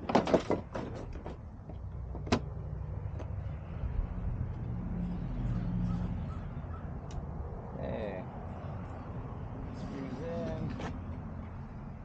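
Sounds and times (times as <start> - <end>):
parts knocking and clicking: 0.0 - 2.5.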